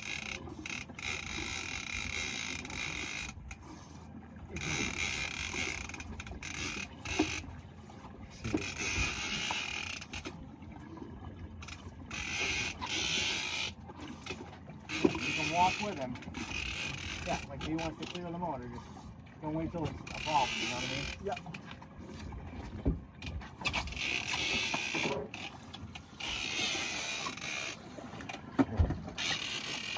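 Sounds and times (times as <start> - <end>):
fishing reel creaking under load: 0.0 - 3.6, 4.5 - 7.5, 8.6 - 10.4, 11.6 - 13.8, 14.9 - 18.2, 20.0 - 21.5, 23.6 - 27.9, 29.0 - 29.9
water noise around boat: 0.0 - 29.9.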